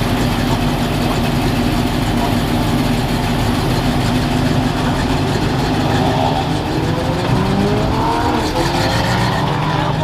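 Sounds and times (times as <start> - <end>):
car engines idling: 0.0 - 10.0
car engine revving up: 4.2 - 10.0.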